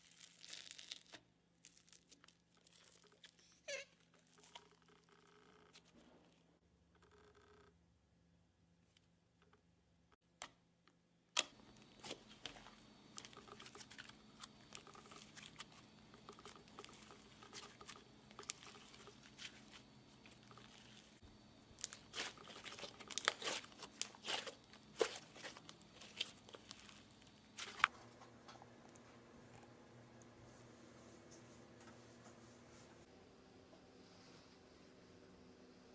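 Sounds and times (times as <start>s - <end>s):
slime and plastic crinkling: 0.0s - 4.8s, 11.6s - 27.9s.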